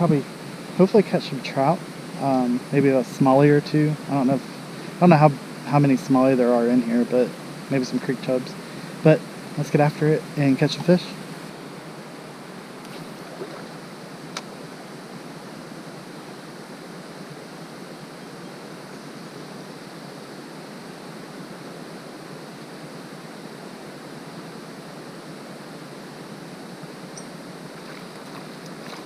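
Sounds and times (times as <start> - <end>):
river water flowing over rocks: 0.0 - 15.3, 27.1 - 29.0.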